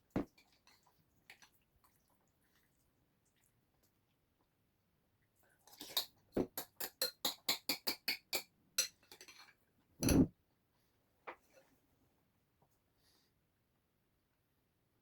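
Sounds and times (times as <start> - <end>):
tableware clinking: 10.0 - 10.3.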